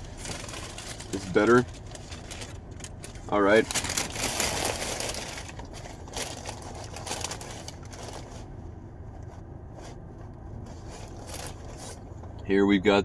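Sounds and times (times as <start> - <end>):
paper wrapper rustling: 0.0 - 8.5, 10.8 - 12.0
steady low hum: 0.0 - 13.0.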